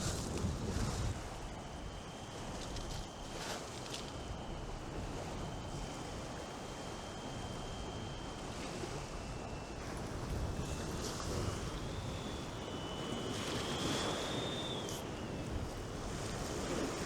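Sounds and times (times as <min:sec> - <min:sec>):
faint high whistle: 0:06.8 - 0:17.0.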